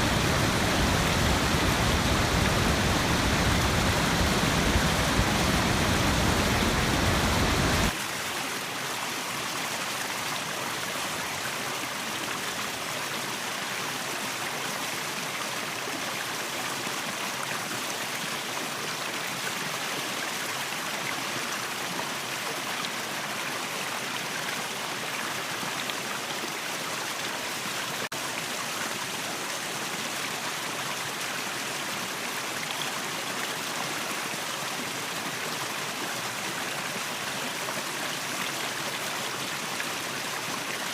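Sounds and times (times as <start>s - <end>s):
water rushing: 0.0s - 8.0s.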